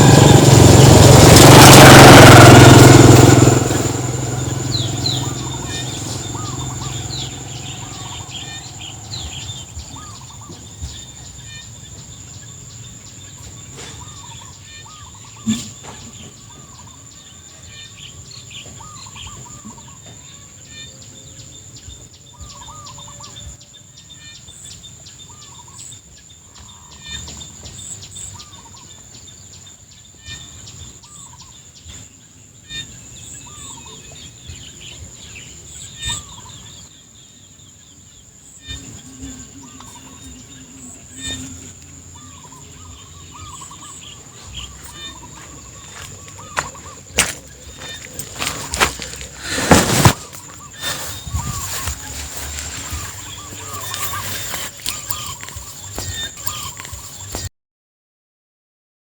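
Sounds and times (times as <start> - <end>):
high-pitched insect drone: 0.0 - 10.2
birds calling: 0.0 - 23.5, 26.5 - 57.5.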